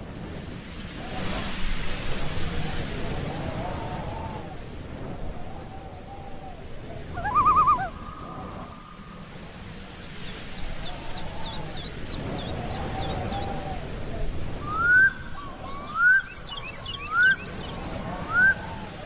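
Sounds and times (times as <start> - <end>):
low hooting bird calls: 5.5 - 14.0
loud warbling bird call: 7.1 - 8.4.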